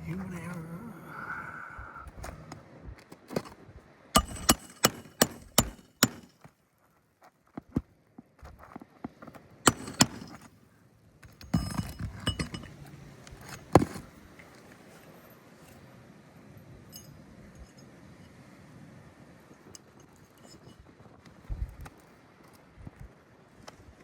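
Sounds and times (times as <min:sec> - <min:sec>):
hammer striking metal: 0:04.2 - 0:06.4, 0:09.7 - 0:10.5
metal clinks: 0:04.2 - 0:06.4, 0:09.7 - 0:10.5, 0:11.4 - 0:12.8, 0:16.9 - 0:18.0, 0:19.8 - 0:20.8.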